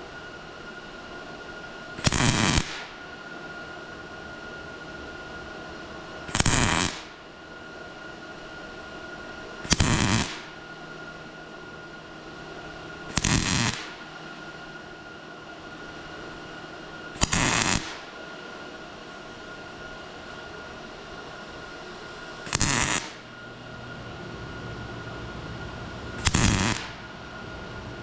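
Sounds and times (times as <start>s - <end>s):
steady hum: 0.0s - 28.0s
welder arc bursts: 2.0s - 3.0s, 6.3s - 7.2s, 9.6s - 10.6s, 13.1s - 14.1s, 17.1s - 18.2s, 22.4s - 23.3s, 26.2s - 27.2s.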